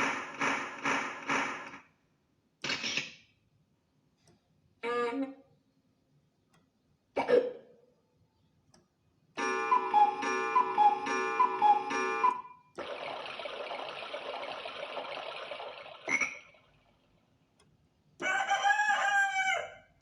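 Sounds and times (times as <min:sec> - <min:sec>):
electronic ringing melody: 0:09.4 - 0:16.6.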